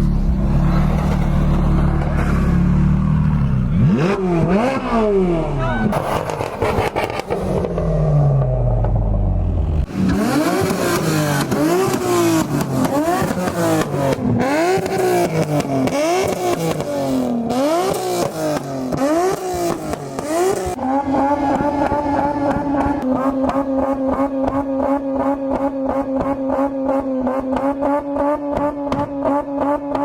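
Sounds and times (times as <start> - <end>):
exhaust crackling: 0.0 - 24.8
car engine revving: 0.0 - 30.0.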